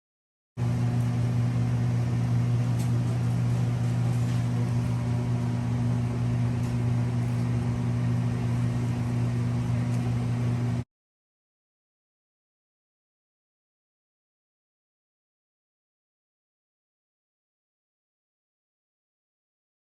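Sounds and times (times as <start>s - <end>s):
low machine hum: 0.6s - 10.9s.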